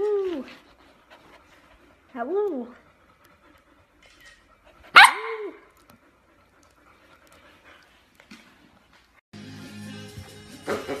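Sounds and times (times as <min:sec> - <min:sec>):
puppy barking: 0:04.9 - 0:05.6.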